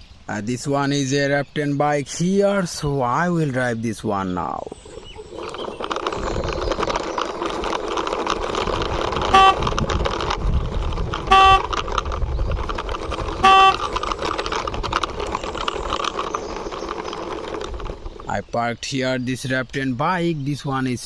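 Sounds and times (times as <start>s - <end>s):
toy wheels rolling on surface: 2.6s - 21.0s
toy horn toots: 9.1s - 10.0s, 11.2s - 12.0s, 13.3s - 14.1s.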